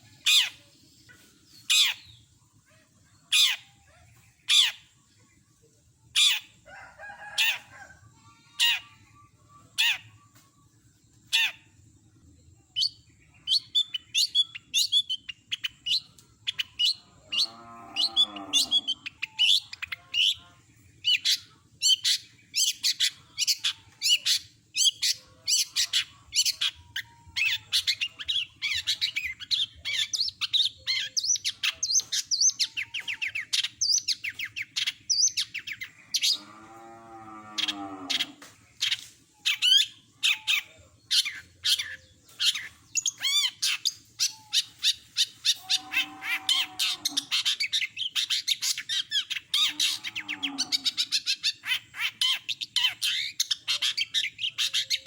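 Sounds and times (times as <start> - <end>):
bird singing sharp high calls: 0.0 - 5.5, 37.6 - 55.0
bird chattering notes: 38.8 - 55.0.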